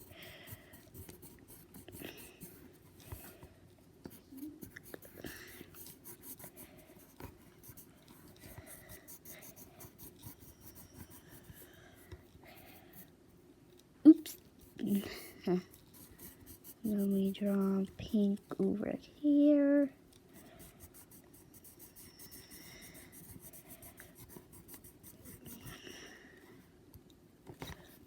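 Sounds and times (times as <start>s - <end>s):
colouring pencil scratching on paper: 0.0s - 3.0s, 4.1s - 12.0s, 14.6s - 18.1s, 20.4s - 25.8s.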